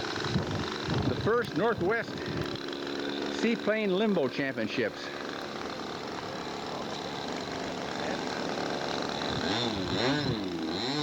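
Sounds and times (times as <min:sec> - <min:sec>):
model airplane engine running: 0:00.0 - 0:11.0.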